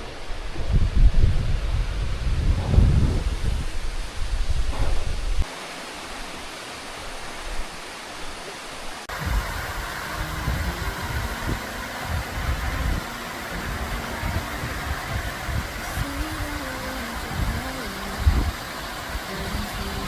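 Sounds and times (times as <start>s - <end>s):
wind rumble on microphone: 0.0s - 5.5s, 9.1s - 20.0s
rushing stream water: 0.0s - 20.0s
faint steady hum: 5.3s - 20.0s
low thumps: 9.1s - 15.8s.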